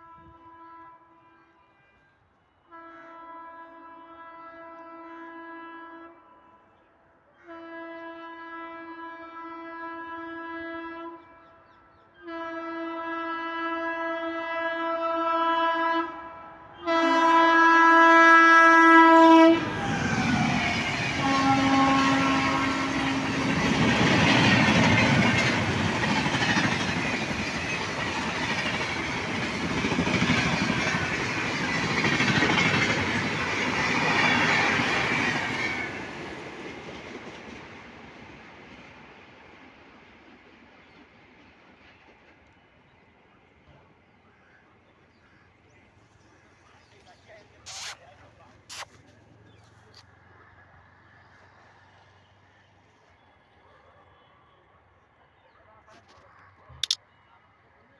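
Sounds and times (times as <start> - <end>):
train horn blasts: 0.0 - 6.8, 7.4 - 23.9
train coaches rushing past: 19.4 - 44.2, 45.6 - 52.8.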